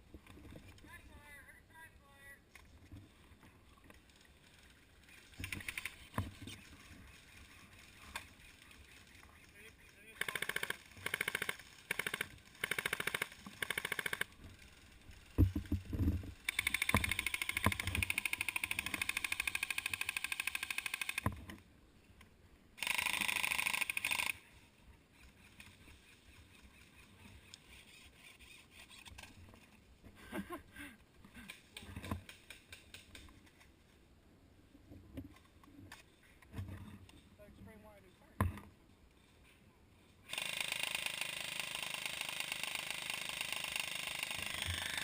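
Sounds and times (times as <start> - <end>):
airsoft guns firing rapid bursts: 10.2 - 14.3, 16.5 - 21.2, 22.8 - 24.4, 40.3 - 45.0.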